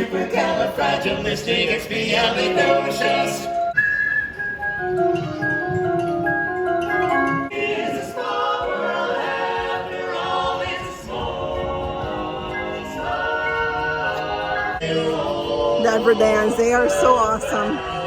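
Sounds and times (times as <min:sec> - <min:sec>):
male vocal group singing a cappella: 0:00.0 - 0:03.6, 0:07.5 - 0:18.0.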